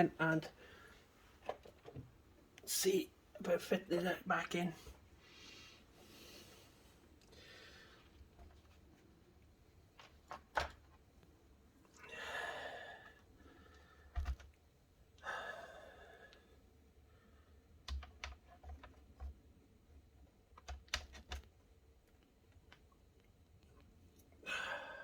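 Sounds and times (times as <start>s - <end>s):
person sighing: 12.0s - 13.1s, 24.4s - 25.0s
laptop parts clicking: 17.8s - 19.4s, 20.5s - 22.8s.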